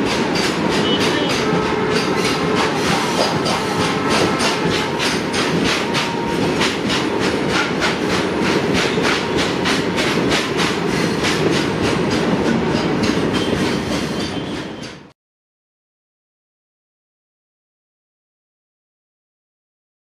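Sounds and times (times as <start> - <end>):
freight wagons rumbling: 0.0 - 15.0
train wheels clicking over rail joints: 0.0 - 15.1.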